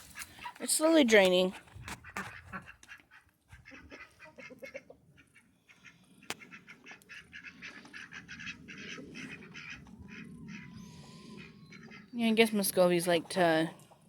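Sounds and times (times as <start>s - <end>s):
ducks quacking: 1.8s - 12.2s.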